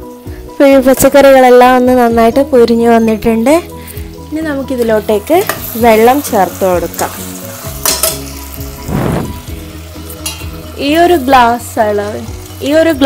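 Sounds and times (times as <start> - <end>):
vegetables sizzling in a pot: 0.0 - 13.0
spoon clinking against pot: 7.8 - 8.3, 10.2 - 10.5.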